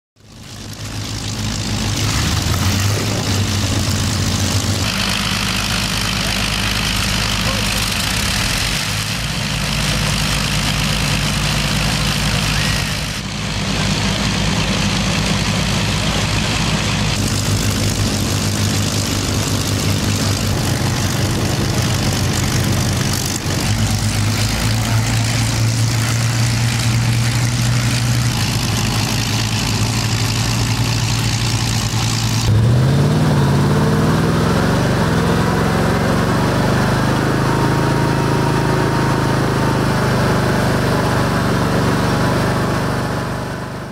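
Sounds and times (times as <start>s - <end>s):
aircraft engines idling: 0.2s - 32.6s
engine revving up after starting: 1.6s - 10.1s, 31.9s - 42.9s.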